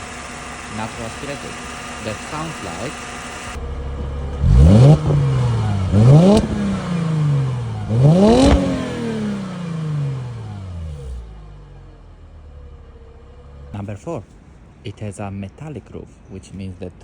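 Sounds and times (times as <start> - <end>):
car engine revving: 0.0 - 11.6
car engine idling: 0.0 - 15.0.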